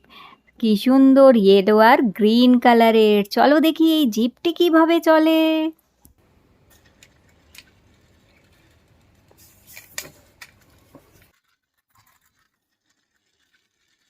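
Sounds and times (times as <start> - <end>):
toy wheels scraping: 6.7 - 14.0.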